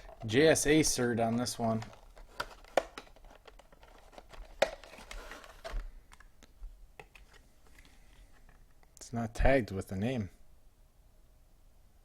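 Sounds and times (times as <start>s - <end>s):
packaging crinkling and rustling: 0.0s - 6.3s
packaging clicks and knocks: 1.2s - 7.3s.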